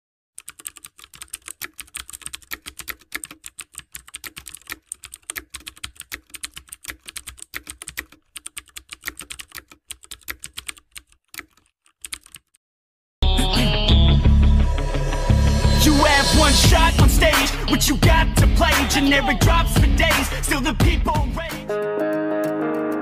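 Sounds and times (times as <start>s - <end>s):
typing on computer keyboard: 0.4s - 12.6s.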